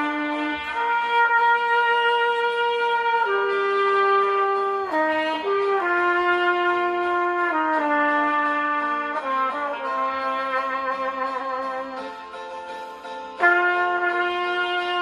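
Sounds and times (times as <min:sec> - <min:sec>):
trumpet playing slow melody: 0:00.0 - 0:15.0.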